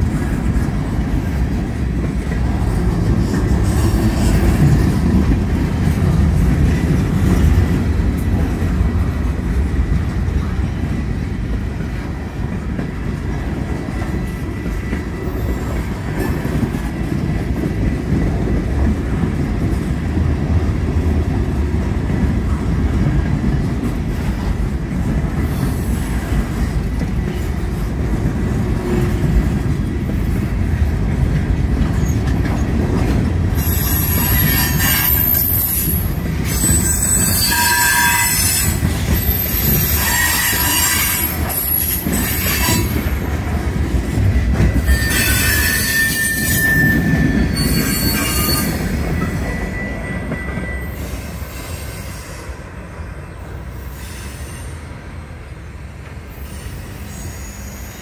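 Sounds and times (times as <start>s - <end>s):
railway cars rumbling past: 0.0s - 58.0s
high-pitched wheel squeal: 33.6s - 43.0s, 44.8s - 52.4s, 56.4s - 58.0s.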